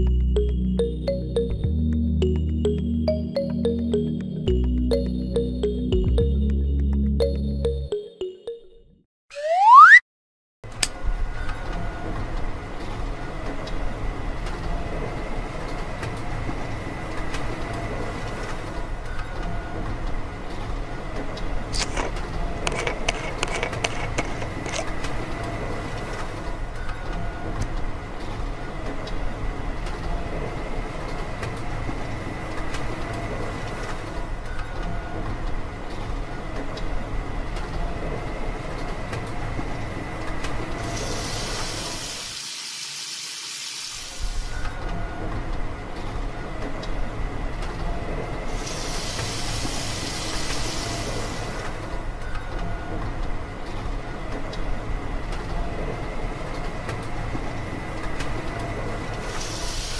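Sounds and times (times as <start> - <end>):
hiss: 40.9 - 44.6, 48.5 - 51.6, 59.3 - 59.9.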